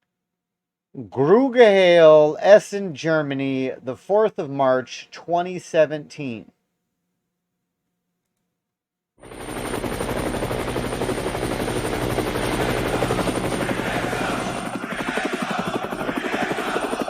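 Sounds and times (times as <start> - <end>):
fast chopping pulse: 9.8 - 17.0
steady low drone: 10.6 - 17.0.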